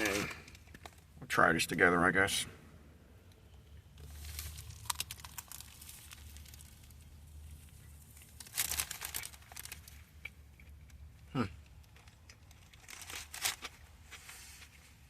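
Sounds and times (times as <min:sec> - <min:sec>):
paper wrapper crinkling: 0:04.0 - 0:10.3, 0:12.0 - 0:14.7.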